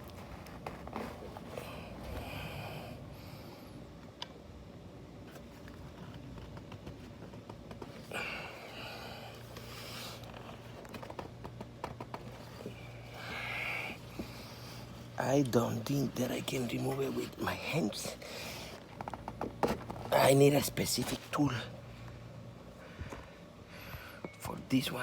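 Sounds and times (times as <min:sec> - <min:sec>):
effortful breaths: 0:01.0 - 0:03.8, 0:07.8 - 0:10.8, 0:12.4 - 0:15.2, 0:18.0 - 0:19.0, 0:22.0 - 0:24.4.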